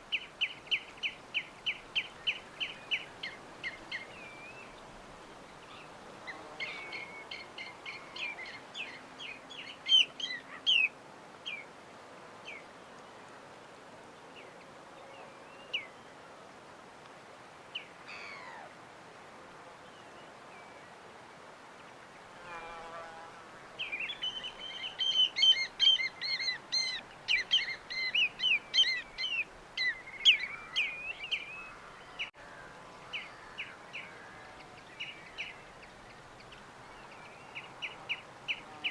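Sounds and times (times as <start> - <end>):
faint background hiss: 0.0 - 38.9
small birds chirping: 23.8 - 32.4.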